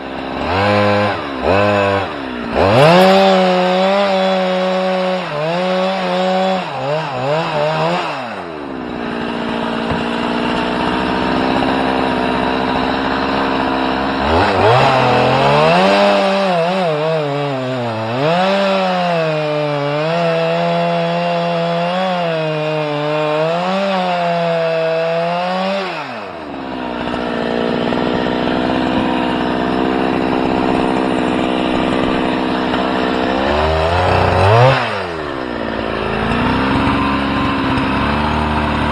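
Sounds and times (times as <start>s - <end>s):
small engine revving and idling: 0.0s - 38.9s.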